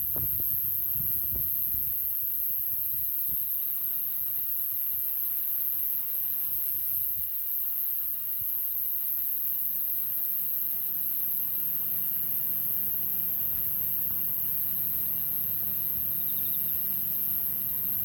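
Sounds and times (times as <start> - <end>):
high-pitched hiss: 9.6 - 18.0.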